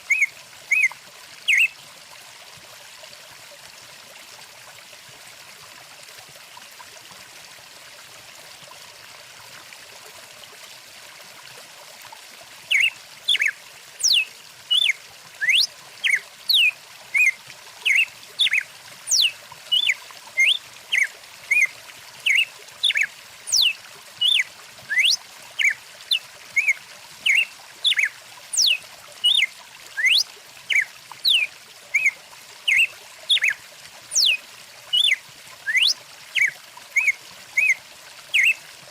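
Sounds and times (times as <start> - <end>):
stream water running: 0.0 - 38.9
songbird chirping: 1.5 - 1.7, 12.7 - 21.7, 22.3 - 34.4, 35.0 - 37.8.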